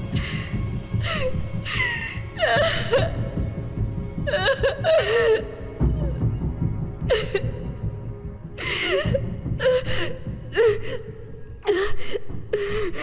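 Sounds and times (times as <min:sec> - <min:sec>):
low dark film score: 0:00.0 - 0:13.0
woman gasping and whimpering: 0:00.1 - 0:03.4, 0:04.3 - 0:06.0, 0:08.6 - 0:13.0.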